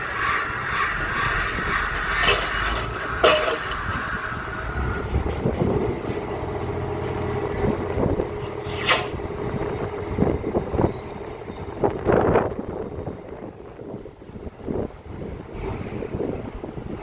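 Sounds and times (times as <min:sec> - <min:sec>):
rig engine running: 0:00.0 - 0:14.8
sharp metallic bangs: 0:01.6 - 0:05.5.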